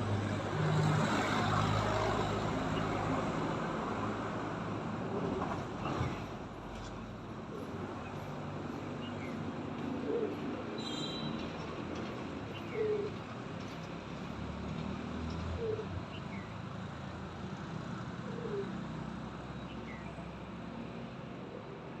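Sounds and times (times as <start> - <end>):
pigeons cooing: 10.0 - 10.5, 12.6 - 13.2, 18.2 - 18.7.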